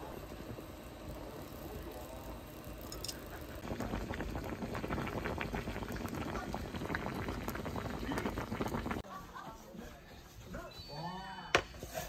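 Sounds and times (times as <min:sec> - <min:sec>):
water boiling hard in pot: 0:00.0 - 0:09.0.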